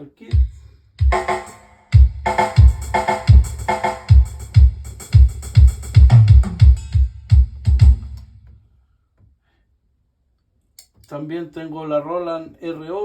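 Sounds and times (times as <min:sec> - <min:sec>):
deep kick drum: 0:00.3 - 0:01.4, 0:02.0 - 0:08.2.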